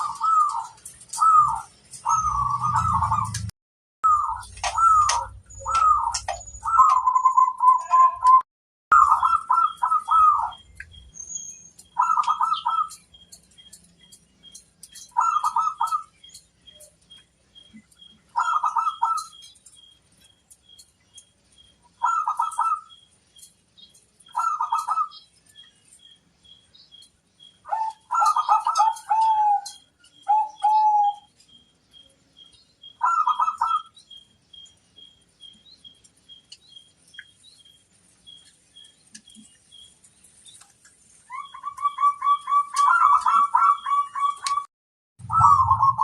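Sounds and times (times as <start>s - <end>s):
dove cooing: 0.0s - 3.5s, 4.1s - 8.4s, 9.0s - 10.6s, 12.0s - 13.0s, 15.0s - 16.1s, 18.3s - 19.4s, 22.0s - 23.0s, 24.3s - 25.1s, 27.7s - 31.3s, 33.0s - 33.9s, 41.3s - 44.6s, 45.2s - 46.0s.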